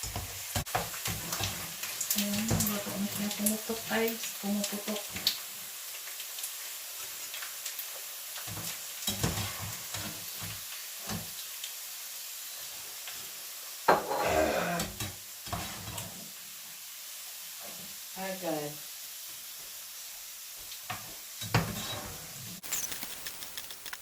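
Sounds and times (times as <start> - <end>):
stirring in a pan: 0.0 - 11.5, 12.6 - 16.4
pasta sizzling in oil: 0.0 - 24.0
pasta popping: 22.6 - 24.0.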